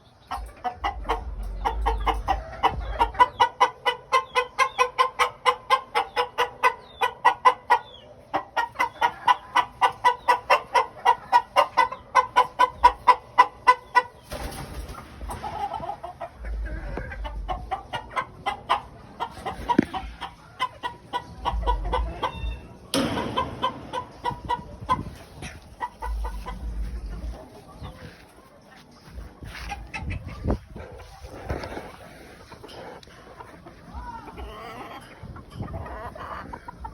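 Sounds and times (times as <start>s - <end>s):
fowl clucking: 0.0s - 36.9s
low rumble: 24.6s - 27.4s.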